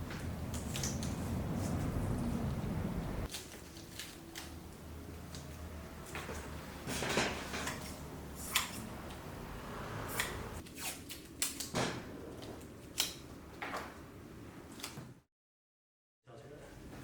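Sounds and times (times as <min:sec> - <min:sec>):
low steady hum: 0:00.0 - 0:10.6.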